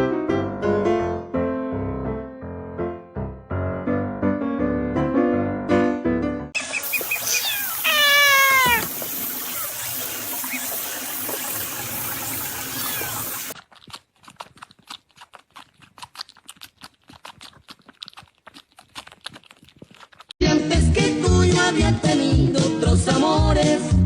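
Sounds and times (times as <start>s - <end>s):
steady hiss: 6.8s - 13.6s
cat meowing: 7.0s - 9.7s.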